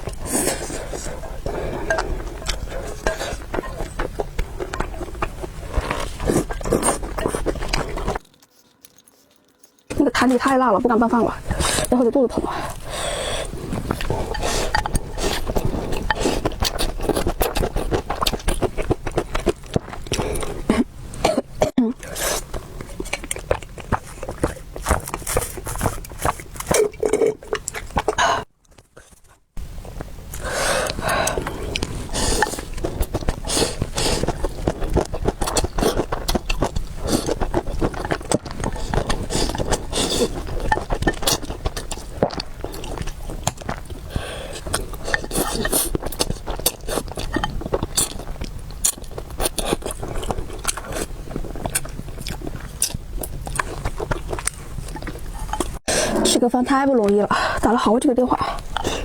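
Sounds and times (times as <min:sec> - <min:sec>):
mouth clicks and chewing smacks: 0:22.5 - 0:28.8, 0:30.3 - 0:55.8.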